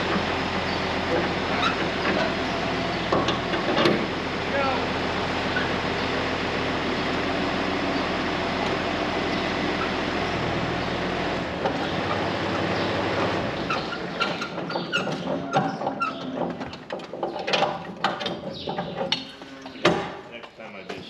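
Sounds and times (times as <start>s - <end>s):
metal squeaks and clanks: 0.0s - 4.2s, 5.5s - 5.8s, 9.3s - 11.0s, 11.6s - 21.0s
tractor engine running: 0.0s - 21.0s.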